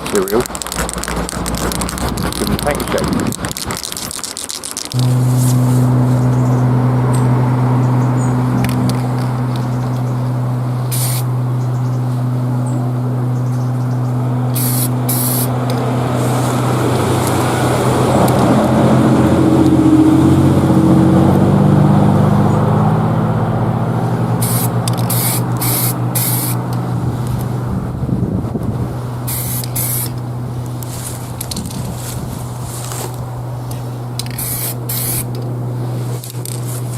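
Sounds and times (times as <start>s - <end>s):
low drone shifting in pitch: 0.0s - 36.9s
aerosol spray can hissing: 3.8s - 6.6s, 10.8s - 11.3s, 14.5s - 16.5s, 24.4s - 26.6s, 29.3s - 30.2s, 34.2s - 35.4s
steady low hum: 4.9s - 36.9s.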